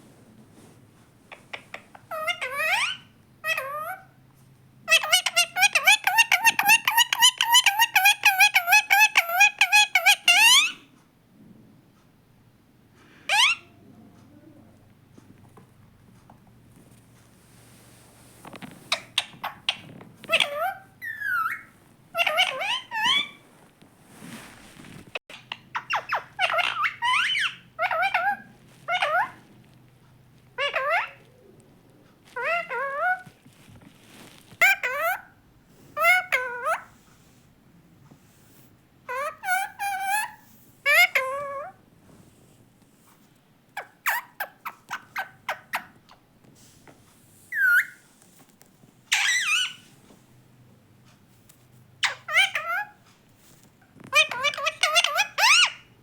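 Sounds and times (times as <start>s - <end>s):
parrot squeaky calls: 1.4s - 4.1s, 4.9s - 10.8s, 13.3s - 13.8s, 18.9s - 23.4s, 25.3s - 29.4s, 30.6s - 31.3s, 32.3s - 33.3s, 34.6s - 35.4s, 36.0s - 36.9s, 39.1s - 41.8s, 43.8s - 46.0s, 47.5s - 48.0s, 49.1s - 49.9s, 52.0s - 53.0s, 54.1s - 56.0s.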